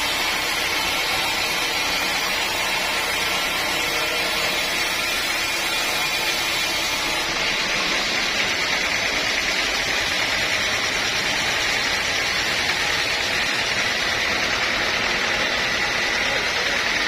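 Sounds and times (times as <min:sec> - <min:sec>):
sawmill machinery whining: 0:00.0 - 0:17.0.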